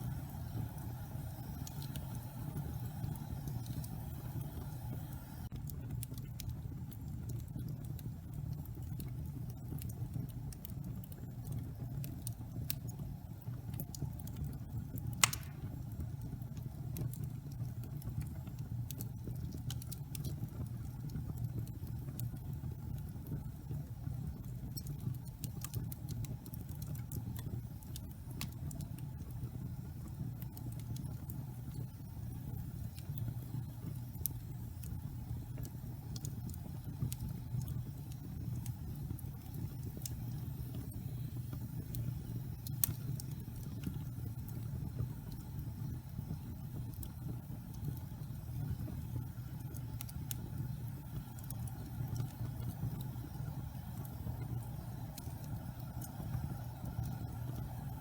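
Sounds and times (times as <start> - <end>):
log fire crackling: 0.0 - 58.0
sharp fire pop: 15.2 - 15.9.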